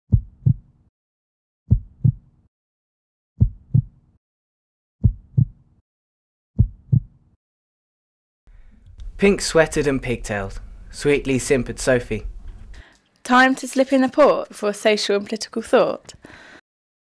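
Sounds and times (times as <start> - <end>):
heartbeat thumps: 0.1 - 0.7, 1.7 - 2.3, 3.4 - 4.0, 5.0 - 5.6, 6.6 - 7.2.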